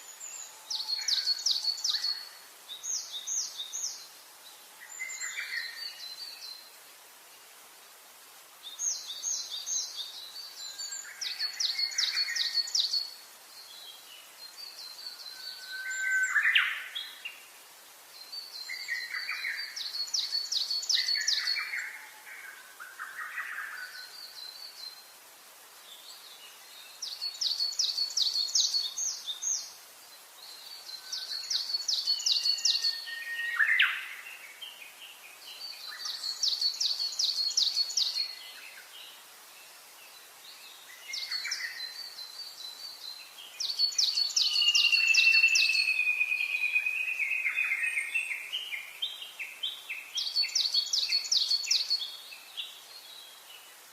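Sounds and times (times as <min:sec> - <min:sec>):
faint steady hiss: 0:00.0 - 0:53.9
whistled bird phrases: 0:43.7 - 0:48.9.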